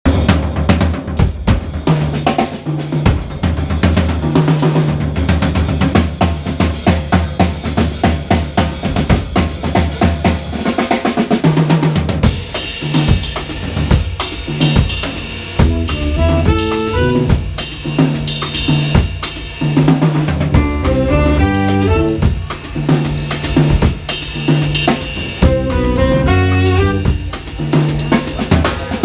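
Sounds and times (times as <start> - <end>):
drum kit playing: 0.0 - 29.0
higher held notes: 15.6 - 17.4, 20.6 - 22.4
sustained bass notes: 15.6 - 17.4, 20.6 - 22.3, 25.4 - 27.1.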